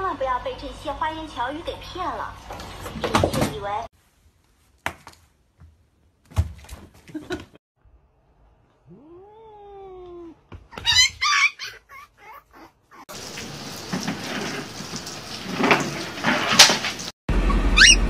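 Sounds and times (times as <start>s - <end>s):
cat yowling harshly: 8.9s - 13.1s, 17.7s - 18.0s.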